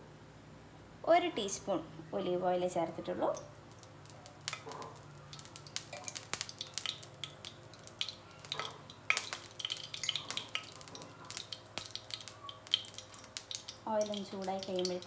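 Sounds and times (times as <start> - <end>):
oil sizzling: 3.0 - 15.0.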